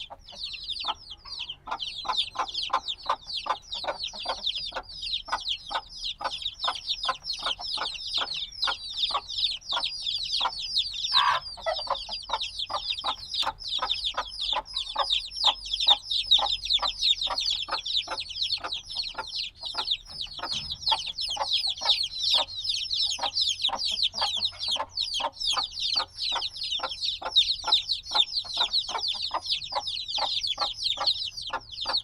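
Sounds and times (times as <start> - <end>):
chicks peeping: 0.0 - 32.0
short lower chick call: 11.1 - 11.5.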